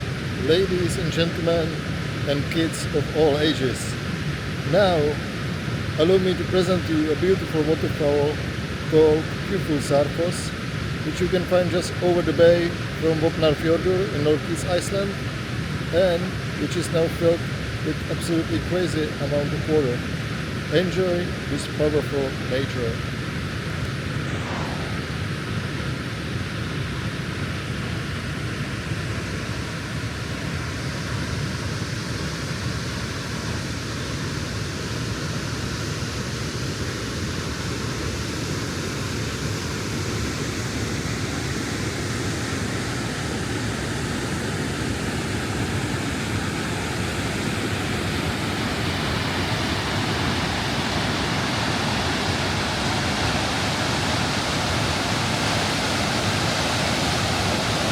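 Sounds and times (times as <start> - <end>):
waterfall rushing: 0.0 - 13.6, 37.4 - 57.9.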